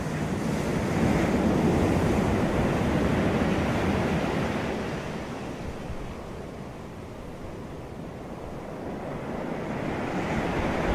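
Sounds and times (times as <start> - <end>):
wind on microphone: 8.5 - 10.9
sea waves breaking: 8.7 - 10.9.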